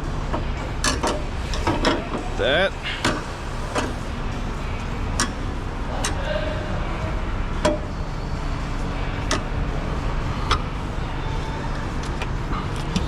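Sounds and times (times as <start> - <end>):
steady low rumble: 0.0 - 13.0
car parts clicking and knocking: 0.3 - 2.2, 7.6 - 7.9, 9.2 - 9.6, 10.4 - 10.7, 12.0 - 13.0.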